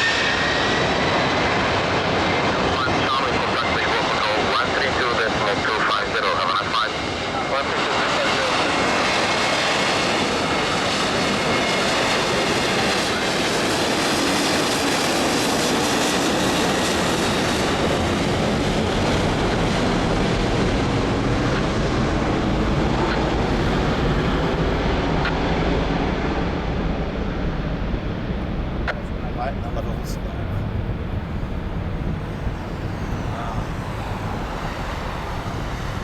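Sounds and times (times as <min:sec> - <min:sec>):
jet engines rushing: 0:00.0 - 0:36.0
thin engine whine: 0:08.4 - 0:36.0
deep engine rumble: 0:18.2 - 0:36.0.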